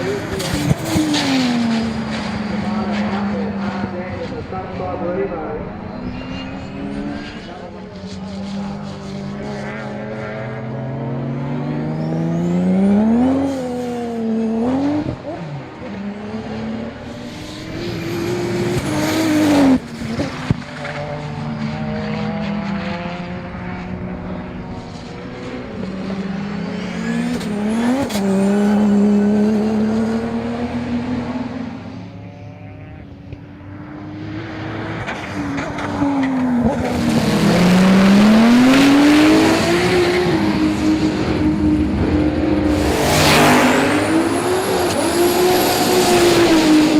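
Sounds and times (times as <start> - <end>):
car engine accelerating hard: 0.0 - 46.9
high whine: 3.9 - 8.2.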